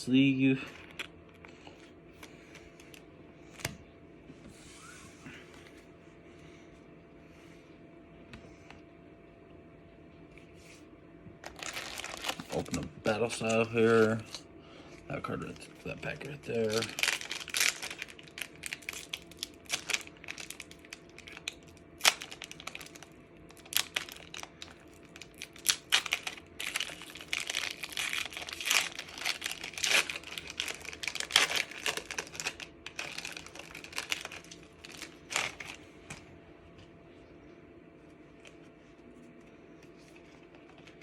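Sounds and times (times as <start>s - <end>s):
foil wrapper tearing and crinkling: 11.4s - 14.4s, 15.3s - 35.8s.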